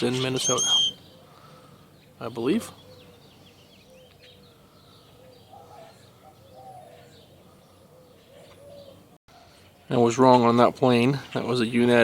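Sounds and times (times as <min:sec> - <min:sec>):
bird warbling: 0:00.0 - 0:07.1
birds chirping: 0:00.0 - 0:12.0.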